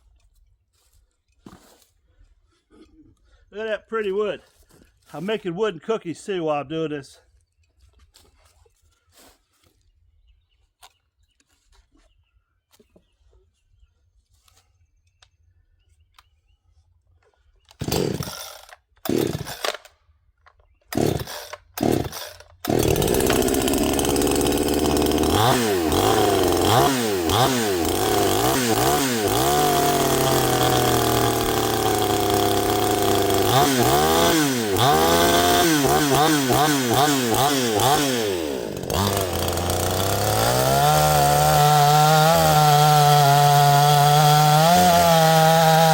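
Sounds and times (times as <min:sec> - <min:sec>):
chainsaw engine running: 0:17.8 - 0:19.8, 0:20.9 - 0:45.9.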